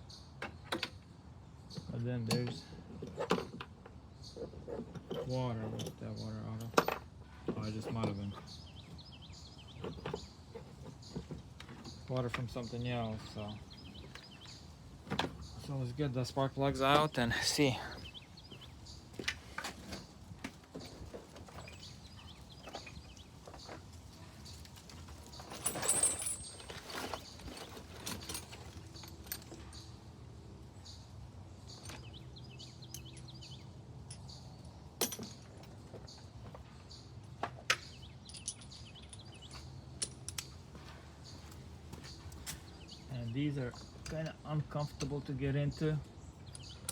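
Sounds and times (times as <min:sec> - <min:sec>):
scraping rustle: 0:19.4 - 0:29.1
hand tools clicking on engine: 0:32.8 - 0:33.5, 0:46.4 - 0:46.9.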